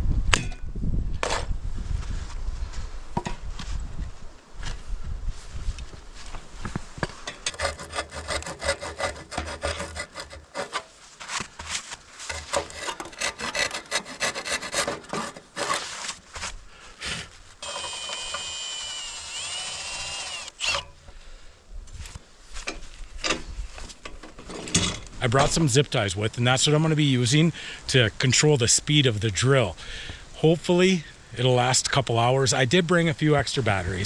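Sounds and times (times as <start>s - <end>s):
hand saw cutting wood: 7.5s - 11.0s, 12.2s - 16.2s, 17.6s - 21.0s
cordless drill running: 17.6s - 20.9s.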